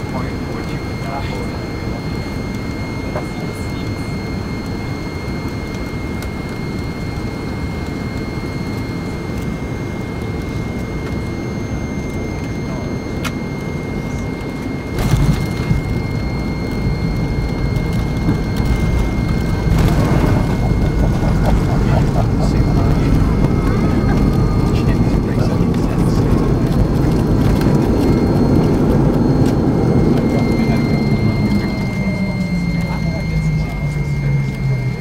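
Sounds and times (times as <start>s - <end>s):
jet engine cabin hum: 0.0s - 35.0s
low rumble: 13.5s - 35.0s.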